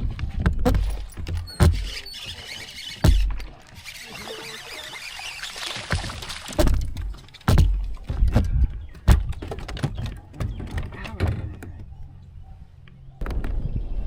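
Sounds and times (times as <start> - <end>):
knocks and thumps on kayak hull: 0.4 - 2.0, 3.0 - 3.6, 5.8 - 11.9.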